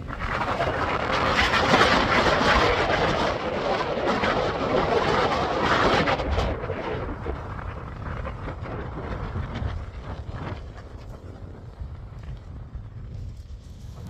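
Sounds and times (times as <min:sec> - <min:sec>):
wind gusting over microphone: 0:00.0 - 0:14.0.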